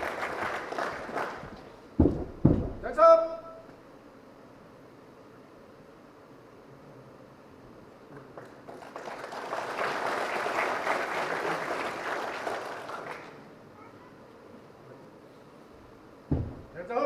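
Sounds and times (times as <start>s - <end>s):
audience applauding: 0.0s - 1.7s, 8.1s - 13.5s.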